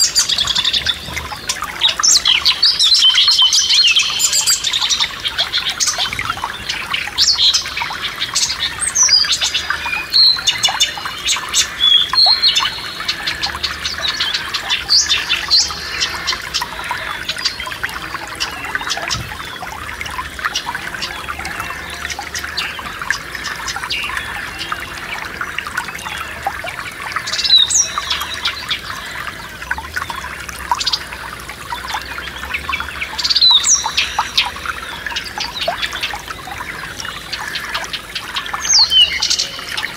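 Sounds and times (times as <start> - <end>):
songbirds singing: 0.0 - 39.9
stream trickling: 0.0 - 39.9.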